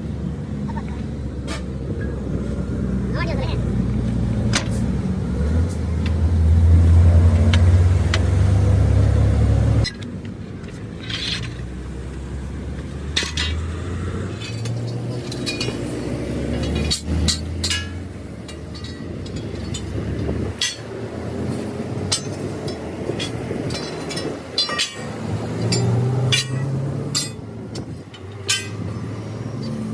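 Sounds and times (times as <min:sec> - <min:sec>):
tools clinking on metal: 0:13.1 - 0:29.9.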